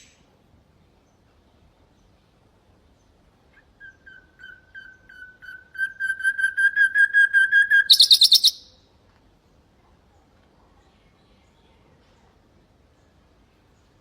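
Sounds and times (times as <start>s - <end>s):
nightingale singing: 2.9s - 8.8s.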